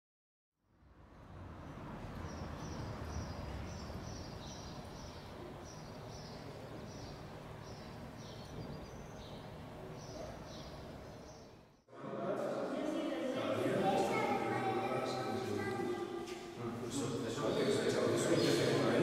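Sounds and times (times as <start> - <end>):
small bird chirping: 2.2 - 11.8.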